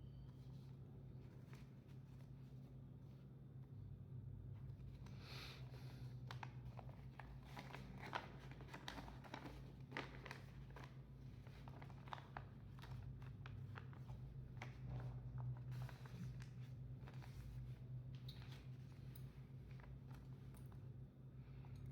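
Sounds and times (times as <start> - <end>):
paper rustling and crinkling: 4.6 - 20.8.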